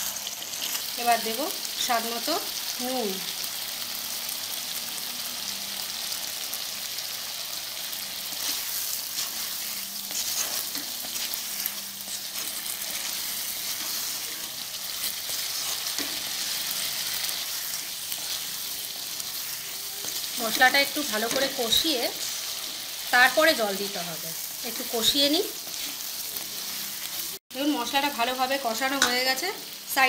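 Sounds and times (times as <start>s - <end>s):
potatoes sizzling in hot oil: 0.0s - 30.0s
spatula scraping pan: 8.3s - 23.0s, 24.6s - 27.4s.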